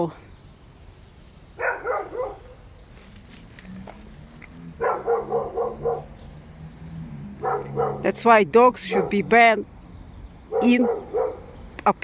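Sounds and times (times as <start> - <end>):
dog barking through walls: 1.6 - 2.6, 4.8 - 6.2, 7.4 - 8.1, 8.9 - 9.3, 10.5 - 11.5.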